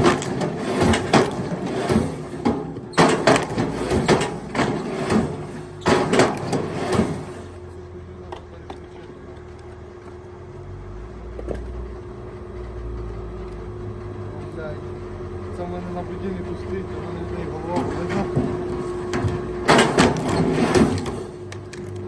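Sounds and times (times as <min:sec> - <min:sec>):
knocks and clatters: 0:00.0 - 0:07.6, 0:17.7 - 0:22.0.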